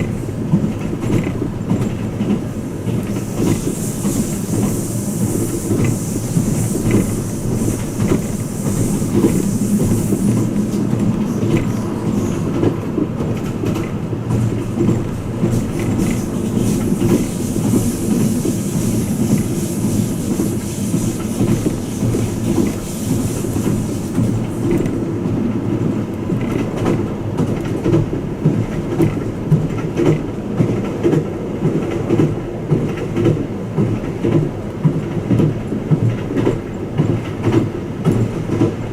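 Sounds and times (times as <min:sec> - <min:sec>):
train wheels rumbling on track: 0:00.0 - 0:38.9
high hiss: 0:03.1 - 0:12.6.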